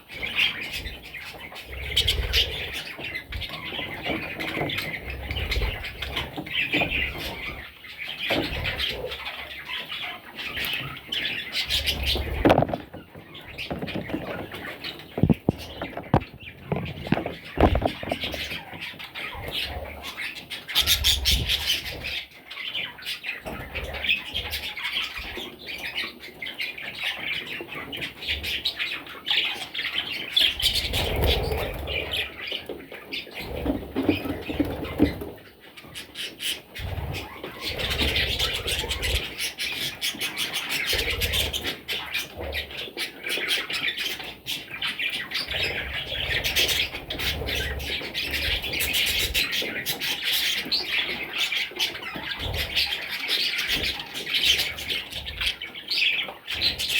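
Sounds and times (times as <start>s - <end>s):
budgerigars chattering and squawking: 0.0s - 56.9s
low thumps: 15.2s - 18.4s.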